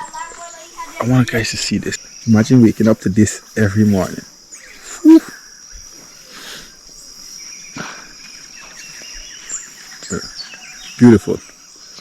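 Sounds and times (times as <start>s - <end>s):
high-pitched insect drone: 0.0s - 8.2s
bird chirps and trills: 0.0s - 12.0s.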